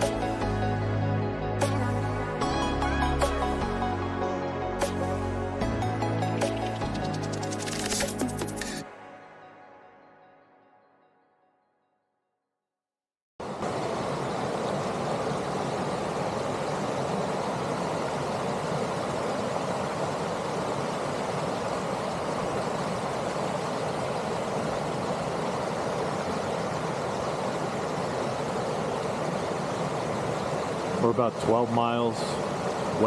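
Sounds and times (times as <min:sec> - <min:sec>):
stream water rushing: 0:13.4 - 0:33.0.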